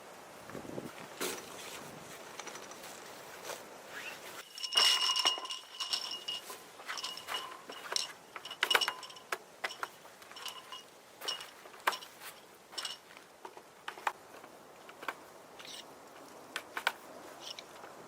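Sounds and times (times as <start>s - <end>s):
metal cookware clinking: 4.5s - 12.1s.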